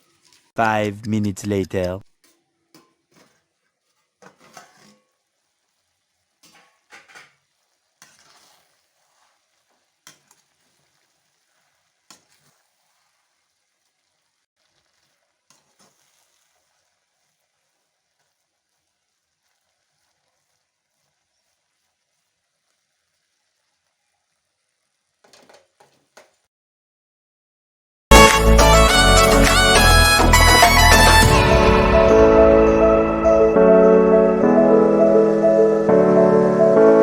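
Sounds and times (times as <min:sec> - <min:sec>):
spoon scraping cooking pan: 0:02.2 - 0:05.7, 0:06.3 - 0:12.9.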